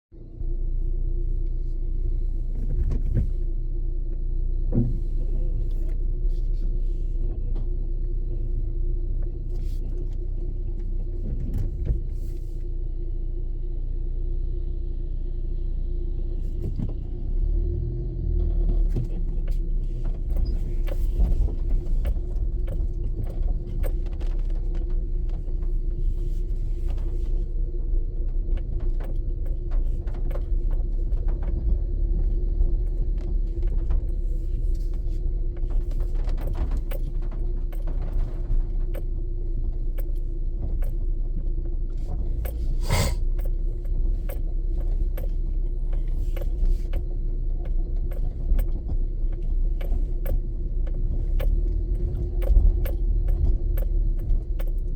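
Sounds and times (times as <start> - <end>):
vehicle engine rumble: 0.0 - 54.9
light ticks and rattles: 18.5 - 54.9.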